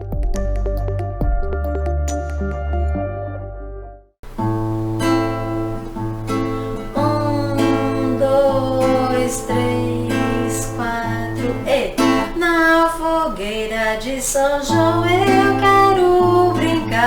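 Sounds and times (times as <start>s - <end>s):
acoustic guitar strumming: 4.2s - 17.0s.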